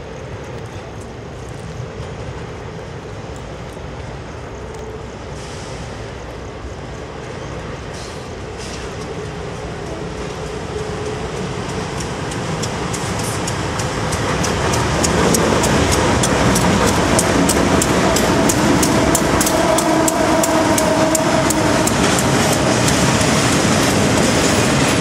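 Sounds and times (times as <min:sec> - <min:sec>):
diesel locomotive rumble: 0:00.0 - 0:25.0
wheel clicks over rail joints: 0:10.2 - 0:25.0.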